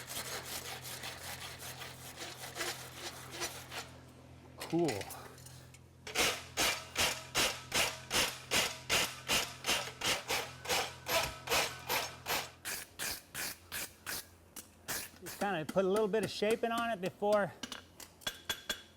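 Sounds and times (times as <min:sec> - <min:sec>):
sanding tube rubbing on steel: 0:00.0 - 0:03.9.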